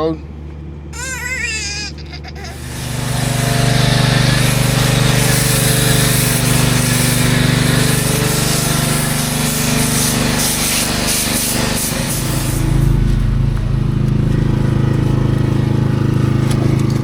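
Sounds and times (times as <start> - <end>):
engine running with rapid pulse: 0.3 - 17.0
loud hiss of spray or air: 5.1 - 11.6.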